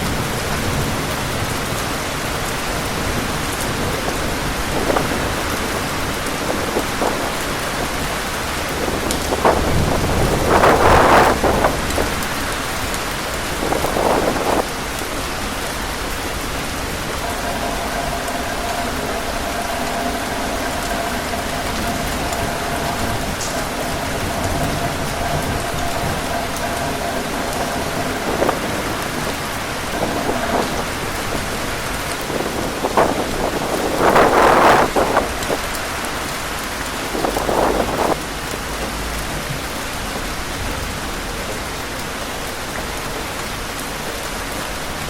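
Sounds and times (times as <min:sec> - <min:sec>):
heavy rain pouring: 0:00.0 - 0:45.0
faint whistle-like tone: 0:17.2 - 0:29.0.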